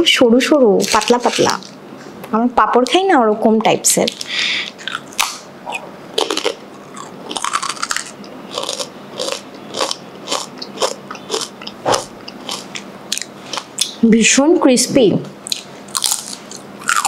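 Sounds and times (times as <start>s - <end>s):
person crunching crisp biscuit: 0.8s - 1.8s, 6.2s - 13.9s, 15.4s - 17.0s.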